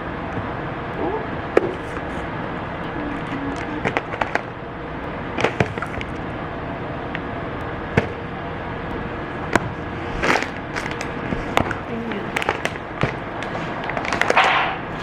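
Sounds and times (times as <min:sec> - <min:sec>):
background hum: 0:00.0 - 0:15.0
packaging rustling: 0:10.2 - 0:14.8.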